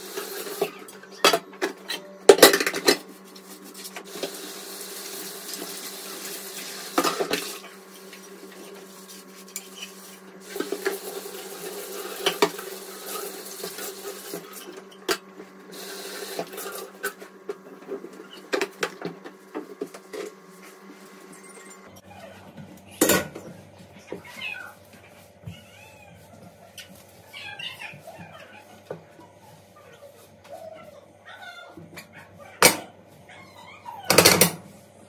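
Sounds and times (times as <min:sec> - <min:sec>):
water running from tap: 0:00.0 - 0:00.7, 0:04.0 - 0:08.8, 0:09.9 - 0:14.6, 0:15.7 - 0:16.9.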